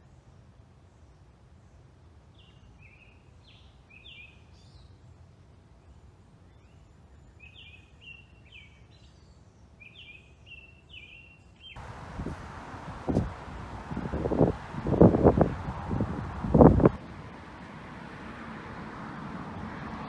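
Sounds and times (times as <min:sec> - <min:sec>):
songbird chirping: 0:11.8 - 0:19.8.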